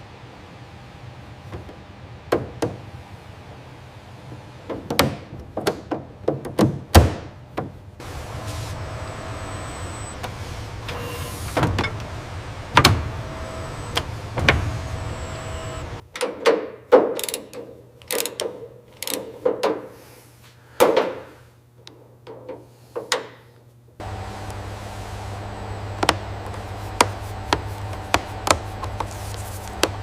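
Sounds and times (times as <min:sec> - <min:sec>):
low machine hum: 0:07.9 - 0:16.0, 0:23.9 - 0:30.0.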